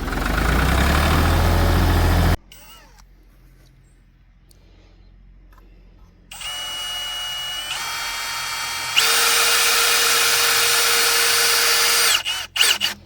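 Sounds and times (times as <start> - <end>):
power drill whining: 6.3 - 13.0.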